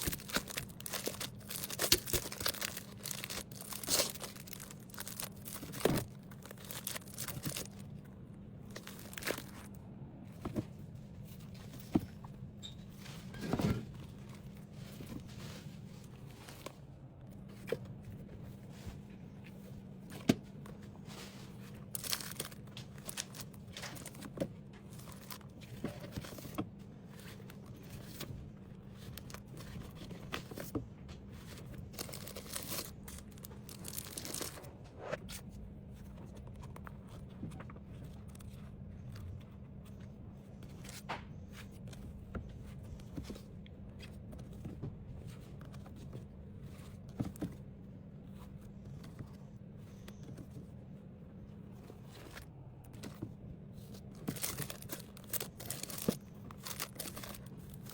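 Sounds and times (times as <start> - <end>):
plastic packaging crinkling: 0.0 - 8.0, 8.6 - 9.7, 21.8 - 26.6, 31.5 - 34.7, 54.2 - 57.9
low steady hum: 0.0 - 57.9.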